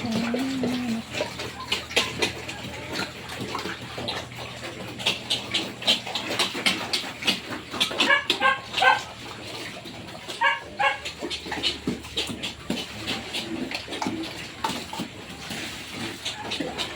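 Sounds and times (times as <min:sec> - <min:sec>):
pigs whining calls: 0:00.0 - 0:09.3, 0:10.1 - 0:12.6
pigs chomping food: 0:00.0 - 0:16.9.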